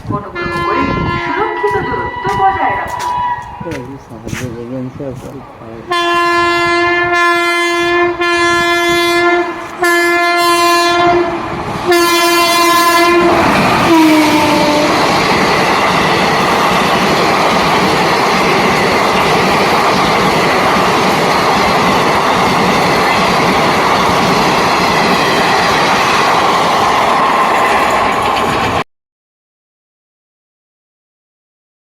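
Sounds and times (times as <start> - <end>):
train running past at speed: 0.0 - 28.8
train horn blasts: 0.2 - 3.7, 5.9 - 15.1.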